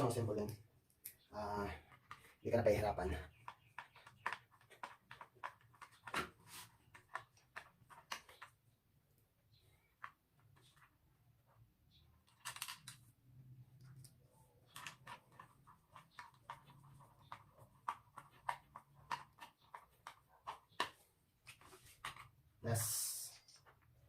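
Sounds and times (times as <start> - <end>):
metal parts clicking and scraping: 12.2 - 13.1.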